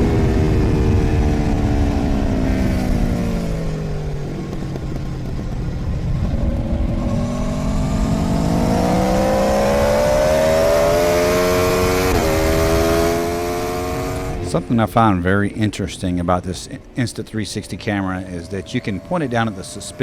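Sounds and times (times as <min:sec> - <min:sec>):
gear change: 0:00.0 - 0:20.0
motorcycle engine accelerating: 0:00.0 - 0:20.0
wind rushing over microphone: 0:00.0 - 0:20.0.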